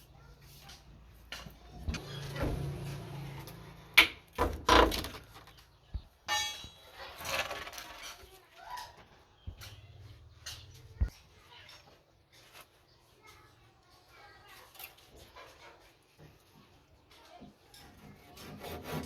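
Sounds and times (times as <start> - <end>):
knocks and clanks of wood and metal: 0.7 - 12.0.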